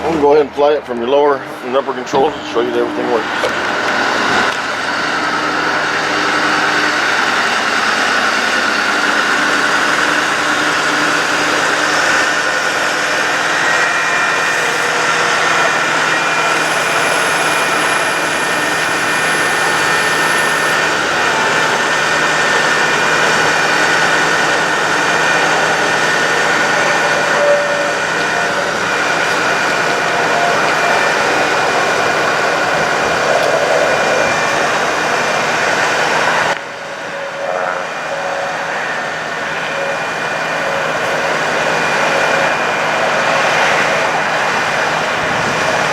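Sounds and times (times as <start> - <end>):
hydraulic pump hum: 1.3 - 45.9
truck engine running: 3.0 - 27.1
faint high whistle: 13.5 - 21.0, 26.9 - 28.6.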